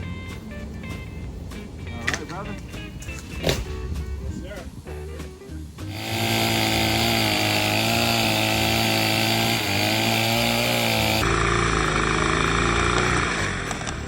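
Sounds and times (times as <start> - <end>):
gas-powered saw engine running: 5.9 - 14.0.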